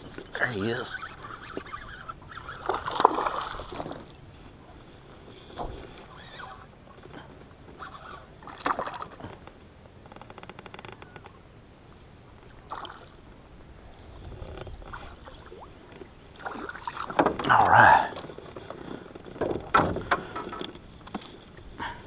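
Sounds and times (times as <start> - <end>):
water splashing around boat: 0.0 - 10.4, 12.4 - 22.0.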